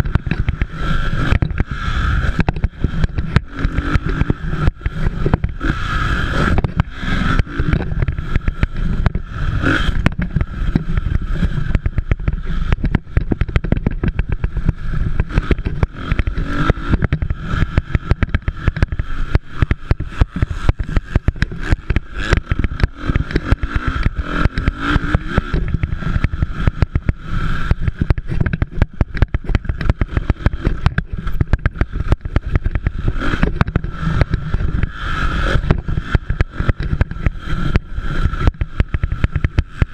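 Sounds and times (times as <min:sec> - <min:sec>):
low rumble and crackling: 0:00.0 - 0:39.9
motorcycle engines racing: 0:00.0 - 0:39.9.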